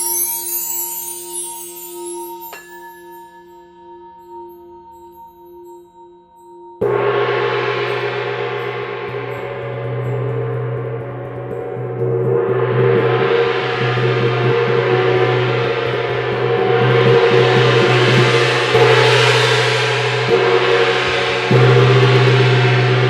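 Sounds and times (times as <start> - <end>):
singing bowl ringing: 0.0 - 18.5
gong struck: 6.8 - 23.0.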